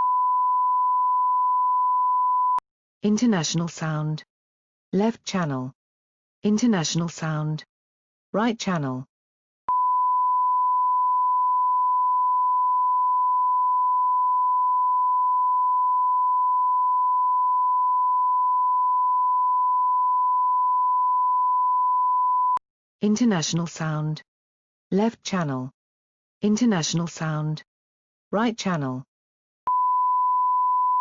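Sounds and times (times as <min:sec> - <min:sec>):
sine-wave test tone: 0:00.0 - 0:02.6, 0:09.7 - 0:22.6, 0:29.7 - 0:31.0.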